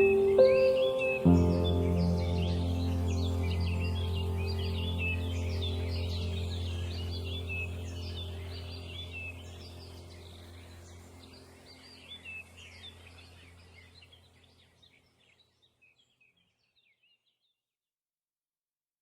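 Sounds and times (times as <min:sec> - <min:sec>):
low steady hum: 0:00.0 - 0:14.6
songbirds chirping: 0:00.0 - 0:17.6.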